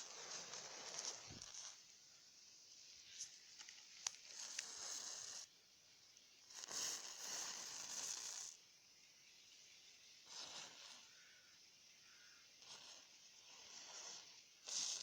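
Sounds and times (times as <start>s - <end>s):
match striking and hissing: 0.0s - 1.9s, 3.0s - 5.5s, 6.5s - 8.6s, 10.3s - 11.1s, 12.6s - 15.0s.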